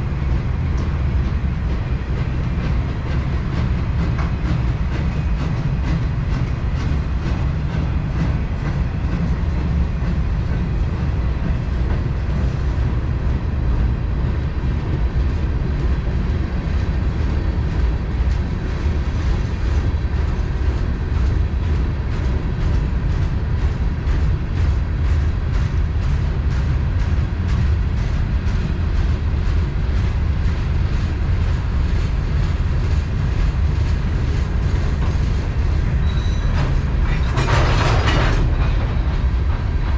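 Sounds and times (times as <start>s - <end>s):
freight train rumble: 0.0s - 39.9s
wheels clacking over rail joints: 34.2s - 39.9s.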